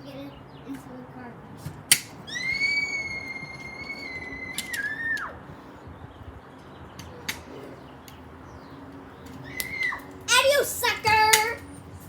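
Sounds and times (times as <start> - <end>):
child squealing: 2.3 - 5.4, 9.4 - 10.7.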